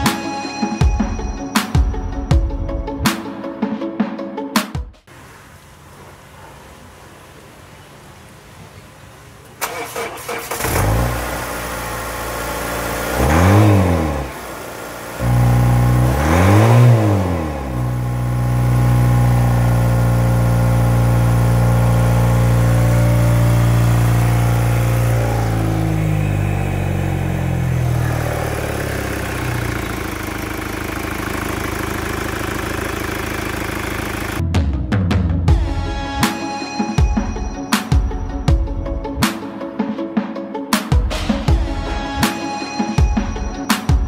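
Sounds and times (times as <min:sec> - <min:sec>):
car engine idling: 0:05.1 - 0:34.4
car engine starting and revving: 0:05.9 - 0:34.4.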